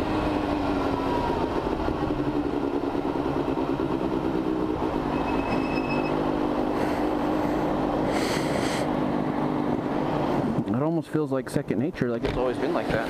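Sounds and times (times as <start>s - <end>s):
motorcycle engine running: 0.0s - 10.0s
brief high tone: 5.1s - 6.2s.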